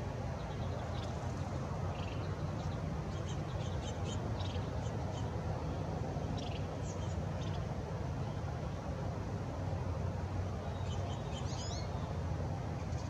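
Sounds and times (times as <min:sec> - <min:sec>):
small birds chirping: 0:00.4 - 0:05.4, 0:06.4 - 0:07.6.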